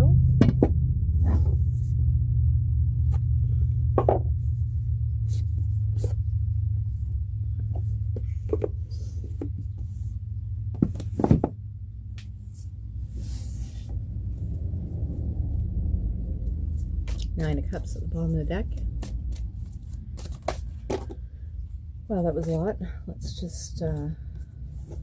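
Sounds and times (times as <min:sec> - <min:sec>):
steady low hum: 0:00.0 - 0:25.0
cards being shuffled: 0:18.7 - 0:21.2.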